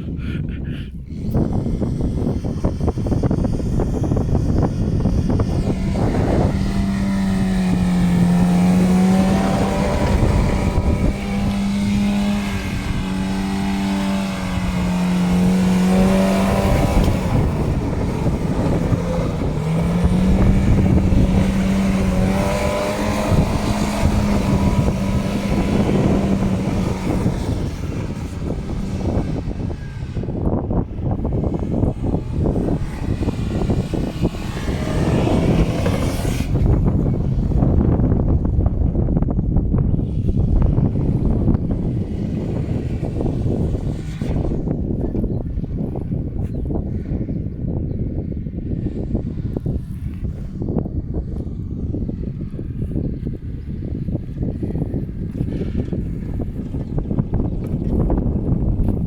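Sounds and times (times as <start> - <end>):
car engine revving hard: 1.1 - 46.3.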